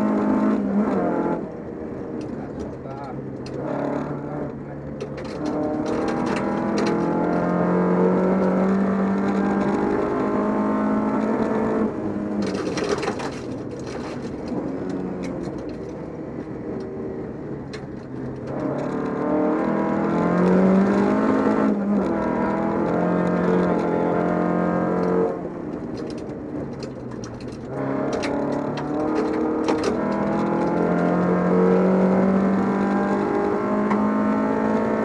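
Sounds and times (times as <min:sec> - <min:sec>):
rally car engine: 0:00.0 - 0:35.0
clicks and rattles: 0:04.9 - 0:07.4, 0:12.4 - 0:16.0, 0:25.0 - 0:31.3.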